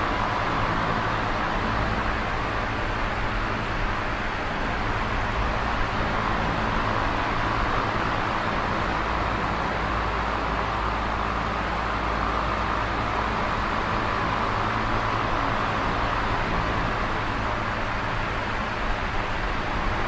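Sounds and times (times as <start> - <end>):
electric fan whooshing air: 0.0 - 20.0
fan motor hum: 0.0 - 20.0.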